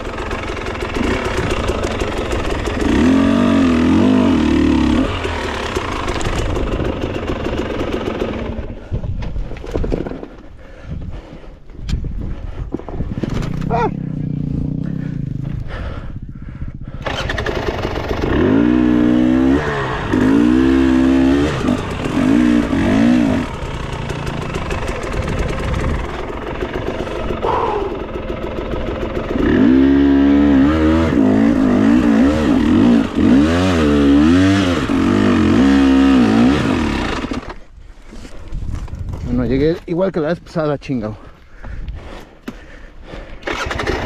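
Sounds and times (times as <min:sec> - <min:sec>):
dirt bike engine revving: 0:00.0 - 0:08.8, 0:13.6 - 0:15.6, 0:17.0 - 0:37.6, 0:43.4 - 0:44.0.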